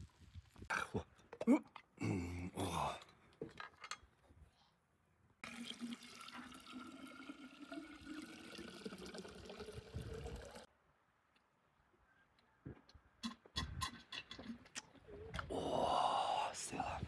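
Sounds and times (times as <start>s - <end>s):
liquid pouring into container: 5.4s - 10.7s.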